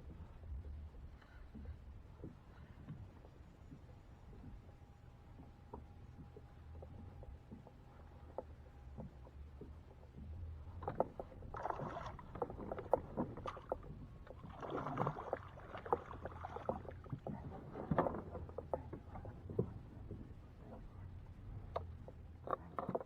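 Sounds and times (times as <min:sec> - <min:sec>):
water splashing at a kayak: 0:09.6 - 0:23.0.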